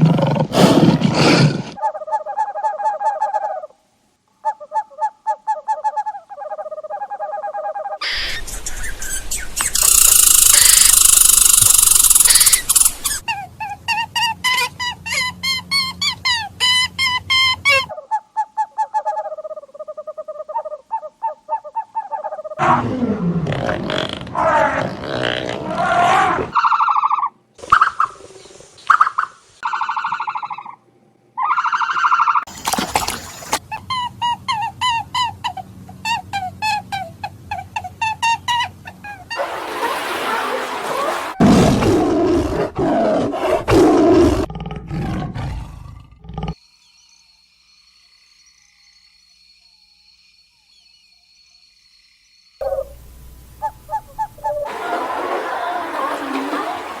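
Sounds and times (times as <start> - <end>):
short sharp chirps: 9.4 - 13.2
high rapidly pulsing call: 9.6 - 13.2.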